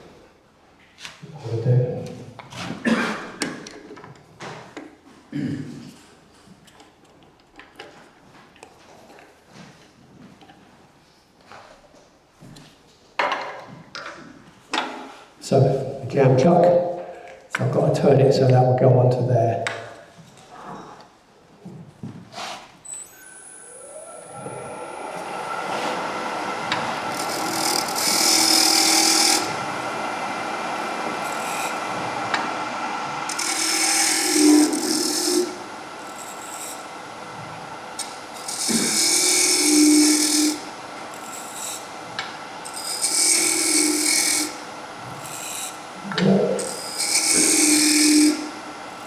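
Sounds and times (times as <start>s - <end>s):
turning tool scraping wood: 22.3s - 49.0s
wood lathe running: 23.1s - 49.0s.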